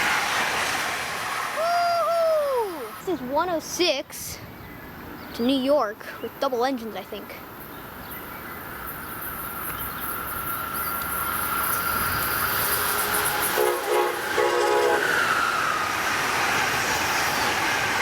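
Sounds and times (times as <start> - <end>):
passenger train passing at speed: 0.0 - 5.2, 7.4 - 18.0
train horn blasts: 12.7 - 15.4.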